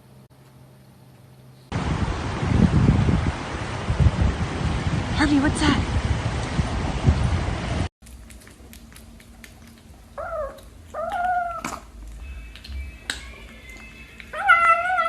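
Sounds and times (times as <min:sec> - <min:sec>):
windy noise: 0:01.7 - 0:07.9
cat meowing: 0:13.2 - 0:15.0.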